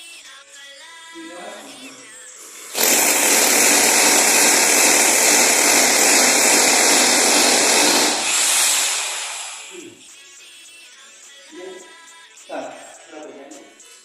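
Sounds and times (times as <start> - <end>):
pressurized gas escaping: 2.4 - 9.9.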